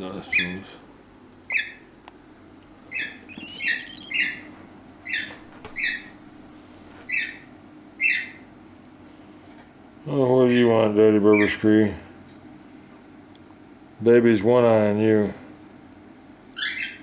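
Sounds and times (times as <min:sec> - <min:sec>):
faint steady hum: 0:00.0 - 0:17.0
bird giving short calls: 0:00.1 - 0:00.8, 0:02.9 - 0:07.4.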